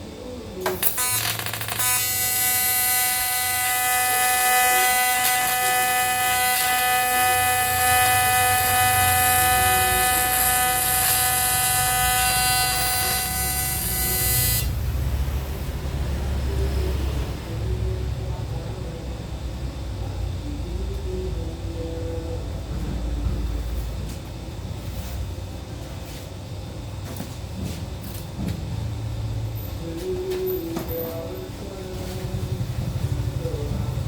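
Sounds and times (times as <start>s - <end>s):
welding arc buzz: 0.6s - 15.8s.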